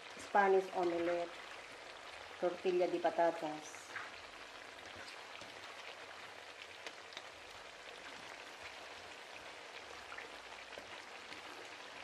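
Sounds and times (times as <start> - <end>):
potatoes frying in oil: 0.0 - 12.0.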